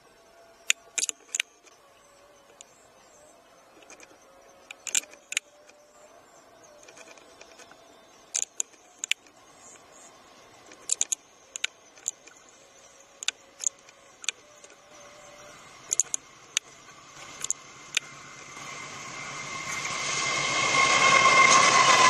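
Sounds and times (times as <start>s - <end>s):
diesel train approaching: 0.0s - 22.0s
steady high tone: 0.0s - 22.0s
sharp clicks: 0.6s - 1.8s, 3.8s - 5.8s, 6.8s - 9.8s, 10.7s - 12.4s, 13.2s - 14.8s, 15.8s - 18.1s.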